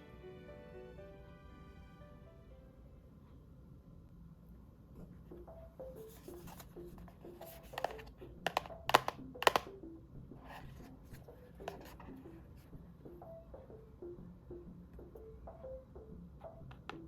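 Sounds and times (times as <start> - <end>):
soft plucked background music: 0.0 - 3.1, 5.0 - 17.0
packaging clicks and crackles: 7.5 - 9.7.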